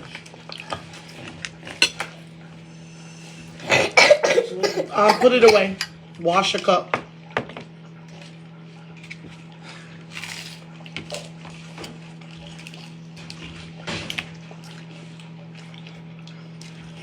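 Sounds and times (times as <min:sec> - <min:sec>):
steady low hum: 0:00.0 - 0:17.0
dishes and cutlery clinking: 0:00.6 - 0:02.2.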